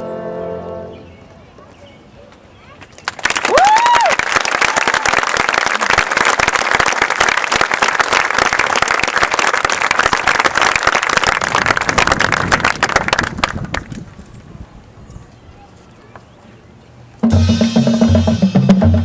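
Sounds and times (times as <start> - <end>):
crowd applauding and cheering: 3.1 - 13.9.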